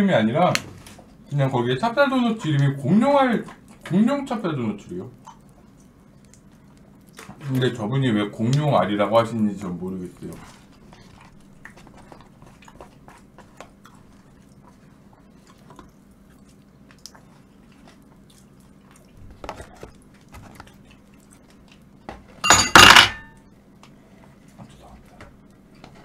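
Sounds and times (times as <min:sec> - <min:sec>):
faint steady hum: 0:00.0 - 0:26.0
person chewing food: 0:02.4 - 0:04.0, 0:04.7 - 0:07.8, 0:09.2 - 0:22.4.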